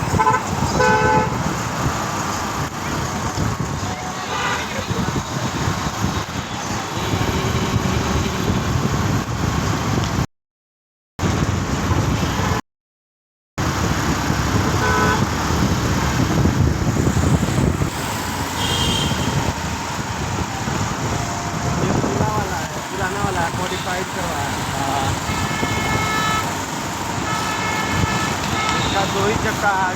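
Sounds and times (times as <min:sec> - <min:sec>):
road traffic noise: 0:00.0 - 0:10.3, 0:11.2 - 0:12.6, 0:13.6 - 0:29.9
short horn beeps: 0:18.6 - 0:19.4.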